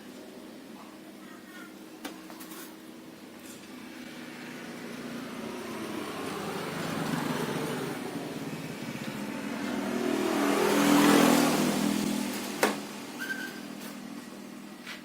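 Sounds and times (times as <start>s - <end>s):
vehicle engine approaching: 3.6s - 14.7s.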